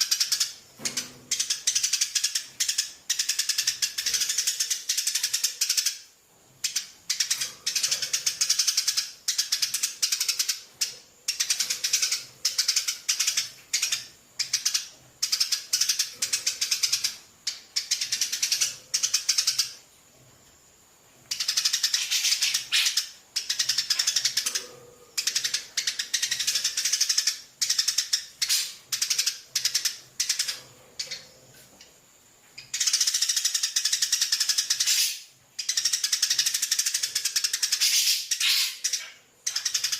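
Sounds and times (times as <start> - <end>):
parrot chick begging calls: 21.9 - 23.2, 34.8 - 35.3, 37.8 - 39.1.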